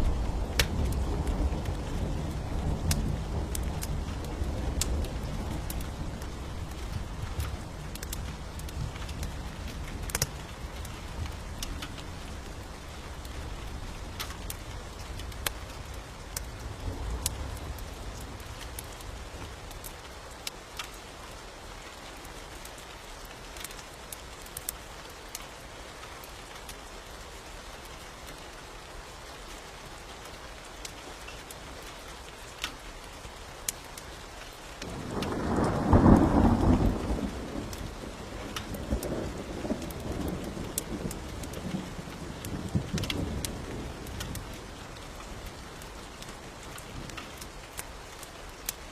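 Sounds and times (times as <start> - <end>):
thunder rumbling: 0.0 - 15.9, 34.8 - 47.4
sharp crackles: 0.0 - 21.0, 30.8 - 48.9
steady rain: 0.0 - 48.9
thunderclap: 34.8 - 44.5.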